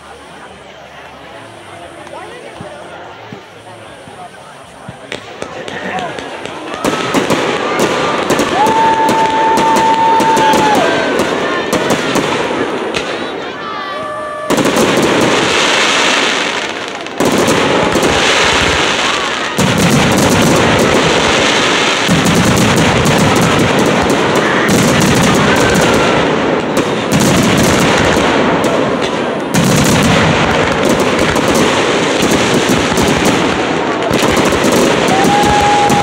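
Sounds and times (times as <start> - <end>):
fireworks bangs and crackling: 0.0 - 36.0.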